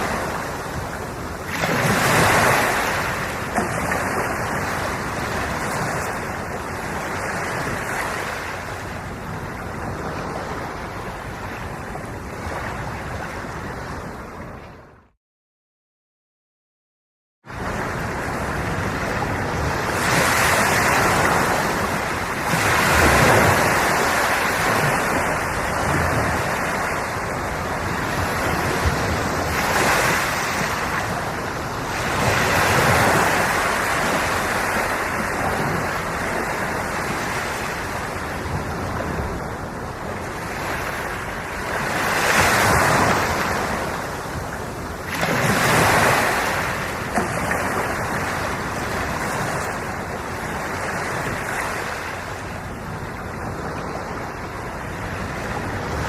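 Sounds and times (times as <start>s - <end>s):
sea waves breaking: 0.0s - 15.0s, 17.5s - 56.0s.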